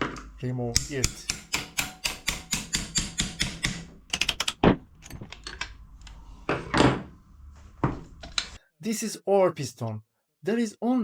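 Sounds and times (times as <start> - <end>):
screwdriver tapping on metal: 0.8 - 3.9.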